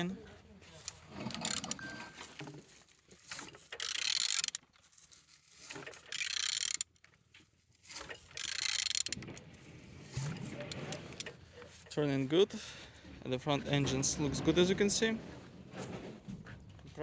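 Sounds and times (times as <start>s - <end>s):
engine turned over by hand: 0.8s - 4.7s, 5.6s - 7.1s, 7.9s - 12.0s.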